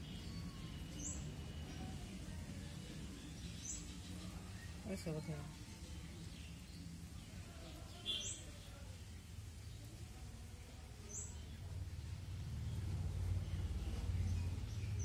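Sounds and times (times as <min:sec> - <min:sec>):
small bird chirping: 0:00.0 - 0:02.1, 0:03.0 - 0:08.8
low outdoor rumble: 0:00.0 - 0:15.0.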